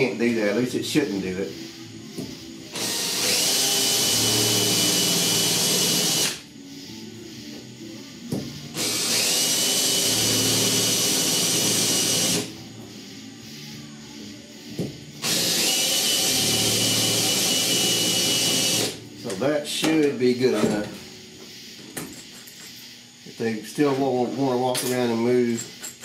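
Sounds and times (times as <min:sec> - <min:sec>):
power drill drilling sheet metal: 0:02.7 - 0:06.4, 0:08.7 - 0:12.5, 0:15.2 - 0:19.0.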